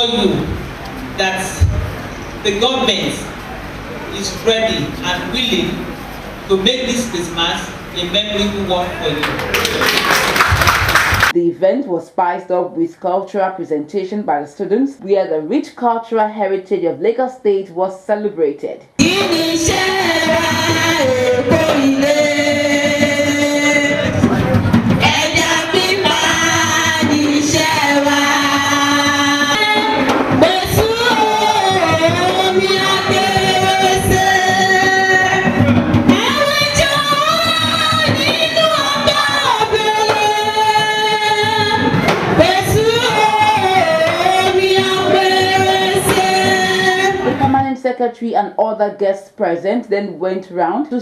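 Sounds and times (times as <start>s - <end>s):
choir group singing: 19.0s - 47.4s
music accompaniment: 19.0s - 47.5s
women singing: 19.0s - 47.6s.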